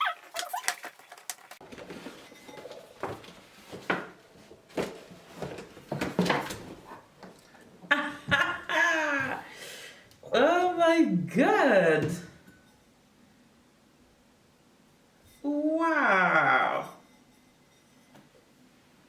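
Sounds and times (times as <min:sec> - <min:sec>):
wrapping crinkling and clicking: 0:00.0 - 0:01.9
woman exclaiming: 0:08.7 - 0:09.5, 0:15.5 - 0:17.0.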